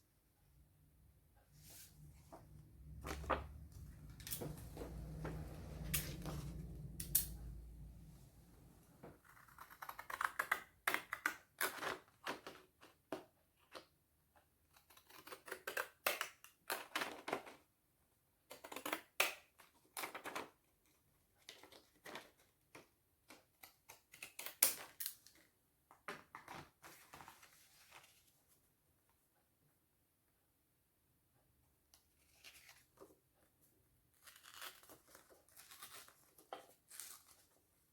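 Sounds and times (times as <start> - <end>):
paper rustling: 1.6 - 6.7, 26.3 - 28.5.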